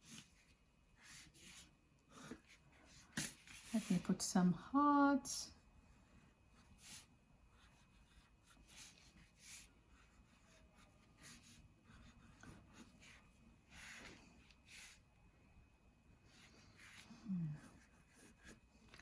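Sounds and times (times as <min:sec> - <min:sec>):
pencil scratching on paper: 0:00.0 - 0:04.2, 0:06.0 - 0:15.0, 0:16.3 - 0:19.0.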